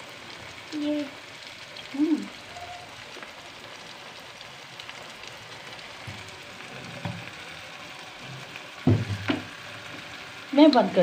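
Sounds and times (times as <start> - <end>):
sauce sizzling in a frying pan: 0.0 - 11.0.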